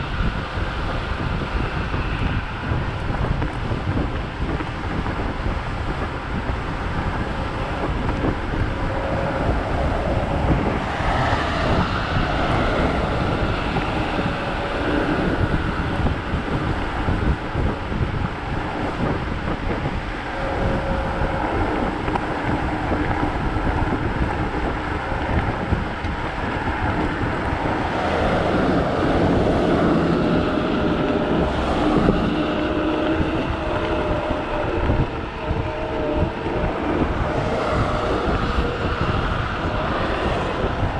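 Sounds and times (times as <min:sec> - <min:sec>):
faint whine: 0:00.0 - 0:40.9
road noise: 0:00.0 - 0:40.9
wind buffeting microphone: 0:00.0 - 0:40.9.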